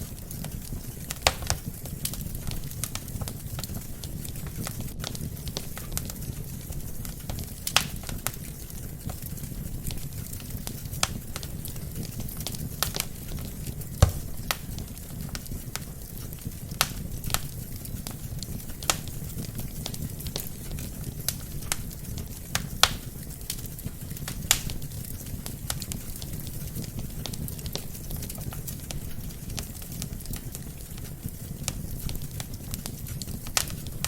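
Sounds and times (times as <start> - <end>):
fire popping and snapping: 0.0 - 34.0
fire rumbling: 0.0 - 34.0.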